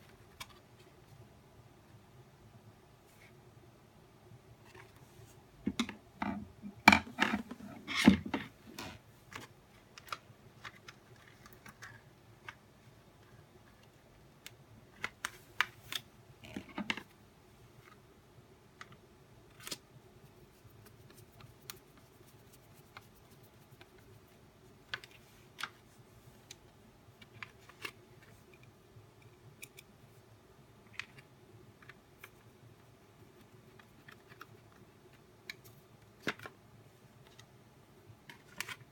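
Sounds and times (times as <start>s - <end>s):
plastic parts clicking and knocking: 5.6s - 8.5s.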